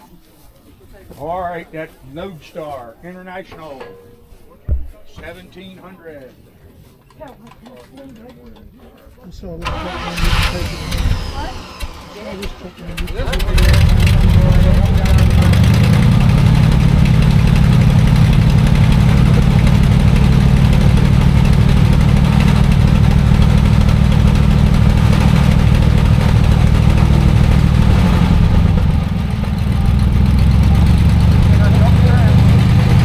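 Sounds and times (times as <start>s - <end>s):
truck engine idling: 9.6s - 33.0s.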